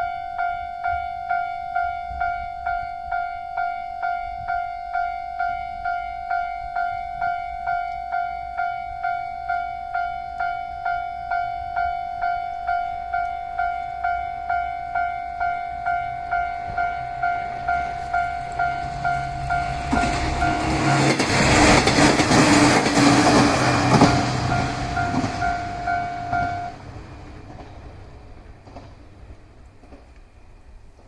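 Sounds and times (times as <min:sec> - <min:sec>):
level crossing bell dinging: 0:00.0 - 0:21.0
train engine and wheel noise: 0:00.0 - 0:31.0.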